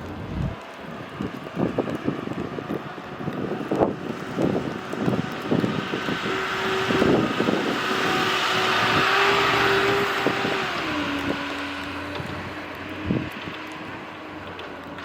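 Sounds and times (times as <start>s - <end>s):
vehicle tyre hiss on snow: 0.0s - 14.9s
engine hum: 0.0s - 15.0s.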